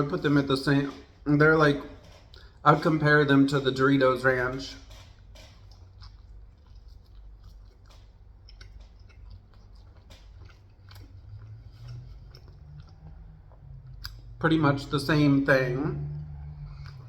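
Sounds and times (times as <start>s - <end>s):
chewing crunchy chips: 0.0s - 14.5s, 16.0s - 17.0s.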